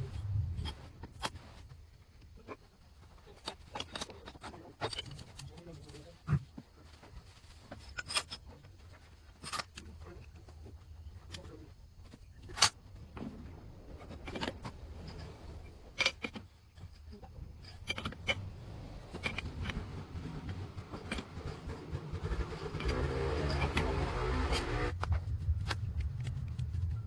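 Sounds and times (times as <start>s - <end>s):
low hum: 0.0s - 3.5s, 7.8s - 27.0s
metal tools clinking: 3.4s - 5.6s, 7.8s - 8.7s, 14.1s - 24.8s.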